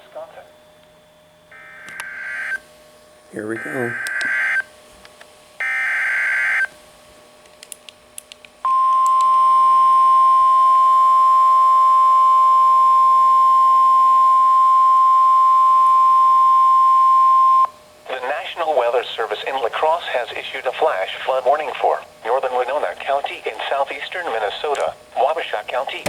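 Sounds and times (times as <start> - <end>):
steady warning alarm tone: 1.4 - 2.7, 3.4 - 4.7, 5.6 - 6.7.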